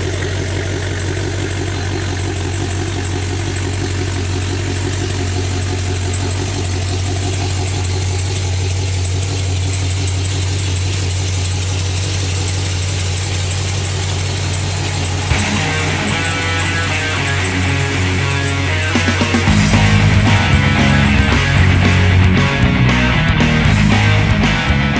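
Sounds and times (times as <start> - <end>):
car engine choppy idle: 0.0 - 24.9
rock music: 15.2 - 24.9.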